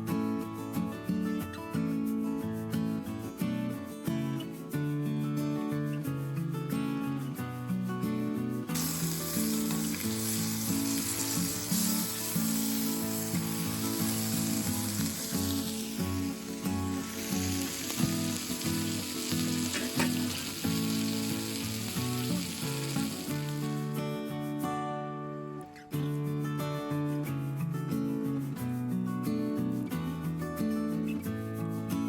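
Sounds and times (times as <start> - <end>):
background music: 6.2 - 24.7
food sizzling in a pan: 8.7 - 24.4.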